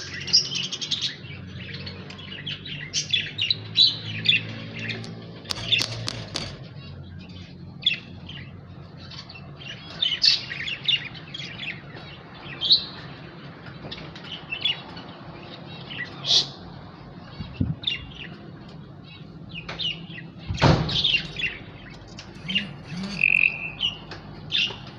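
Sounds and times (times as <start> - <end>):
sharp clicks: 5.0 - 6.6
lovebirds chirping: 22.4 - 24.2.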